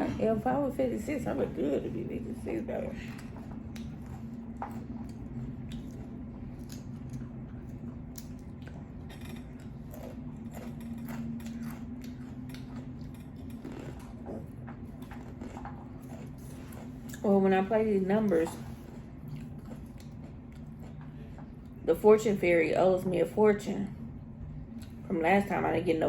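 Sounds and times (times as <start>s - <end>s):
steady low hum: 0.0s - 26.0s
chewing and mouth clicks: 2.9s - 17.3s, 18.2s - 21.8s, 24.7s - 25.0s.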